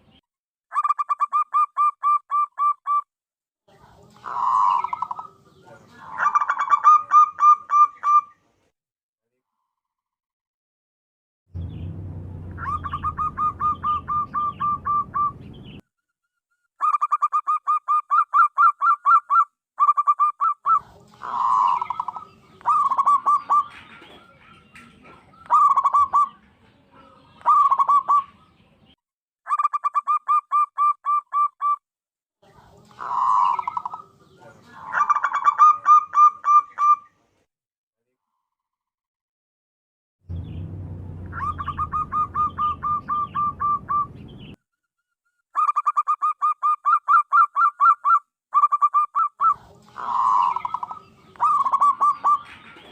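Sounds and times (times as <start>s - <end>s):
dove cooing: 4.2s - 8.3s, 12.6s - 15.4s, 19.8s - 28.4s, 32.9s - 37.0s, 41.4s - 44.1s, 45.6s - 52.9s.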